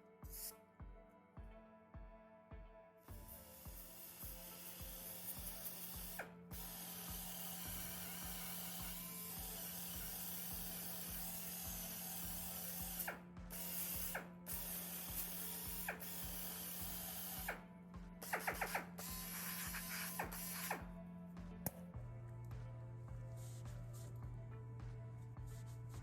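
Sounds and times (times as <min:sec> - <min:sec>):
background music with beat: 0:00.0 - 0:26.0
power tool on steel panel: 0:03.1 - 0:21.8.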